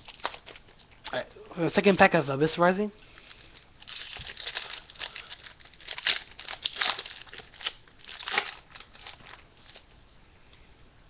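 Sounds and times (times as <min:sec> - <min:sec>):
foil wrapper crinkling and tearing: 0:00.0 - 0:00.7, 0:03.1 - 0:09.9.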